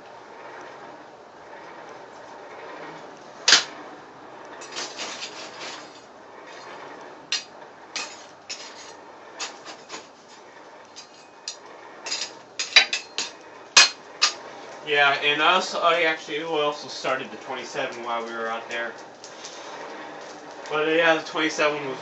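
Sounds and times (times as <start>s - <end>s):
hammer striking metal on anvil: 12.6s - 14.4s.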